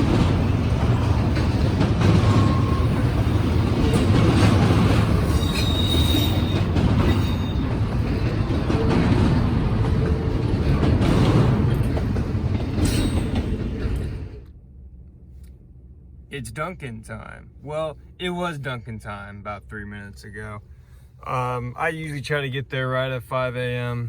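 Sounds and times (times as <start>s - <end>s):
train wheel squeals: 0.0s - 9.5s, 11.0s - 14.3s
freight train rumbling: 0.0s - 22.7s.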